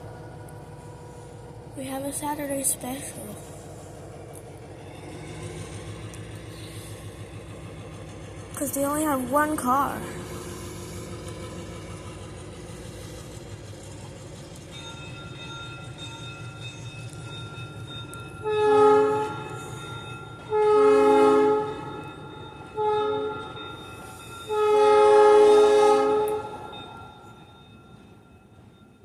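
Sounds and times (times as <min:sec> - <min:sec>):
locomotive engine rumbling: 0:00.0 - 0:29.0
locomotive air horn blasts: 0:18.4 - 0:19.4, 0:20.5 - 0:21.8, 0:22.8 - 0:23.4, 0:24.5 - 0:26.6.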